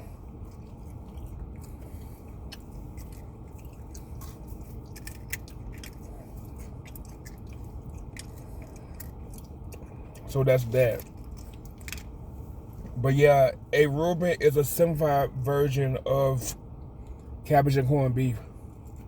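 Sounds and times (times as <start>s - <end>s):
person chewing food: 0.0s - 10.3s
steady low hum: 0.0s - 19.0s.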